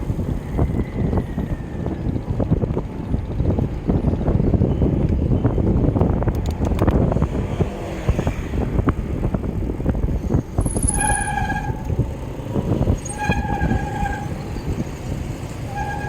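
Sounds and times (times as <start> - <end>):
wind and road rumble: 0.0 - 16.0
steady pitched tone: 10.6 - 11.8.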